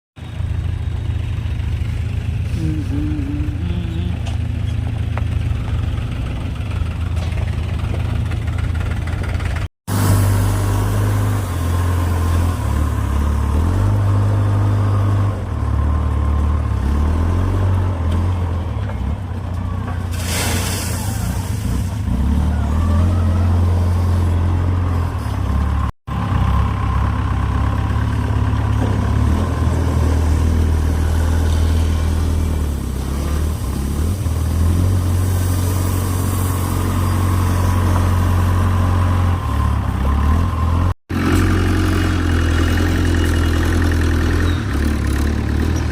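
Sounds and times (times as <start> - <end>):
diesel engine revving: 0.2 - 45.9
short hiss: 20.1 - 21.6.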